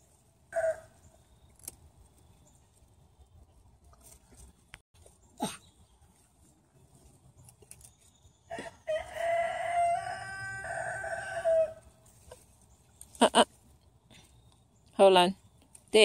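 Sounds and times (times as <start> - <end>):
rooster crowing: 0.5 - 0.9, 8.5 - 11.9.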